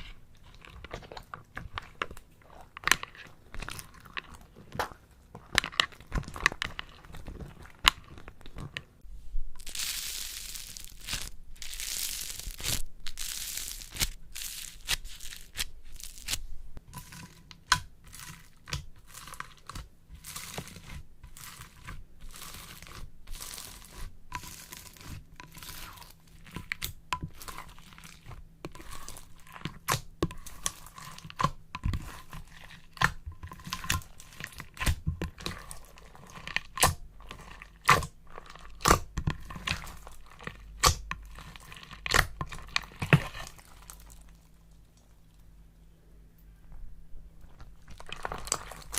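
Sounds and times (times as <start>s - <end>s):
hissy tearing or crinkling: 9.6s - 16.4s
crisp material crunching and crackling: 9.6s - 16.5s, 18.1s - 45.1s, 47.4s - 48.9s.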